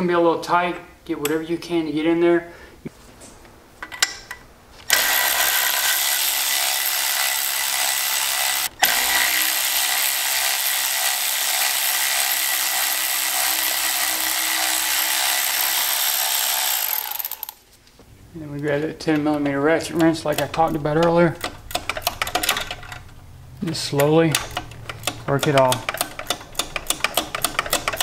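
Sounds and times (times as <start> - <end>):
electric ratchet motor running: 4.9 - 17.6.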